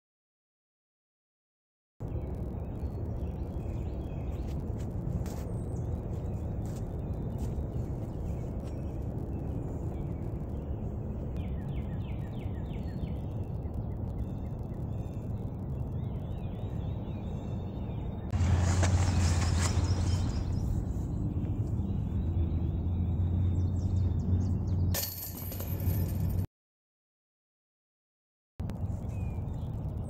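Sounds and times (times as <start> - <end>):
steady low rumble: 2.0 - 24.9
birds chirping: 2.0 - 25.9.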